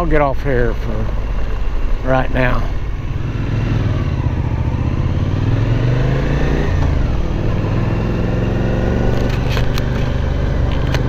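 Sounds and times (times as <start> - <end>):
motorcycle engine running: 0.0 - 11.0
sharp clicks: 9.1 - 11.0.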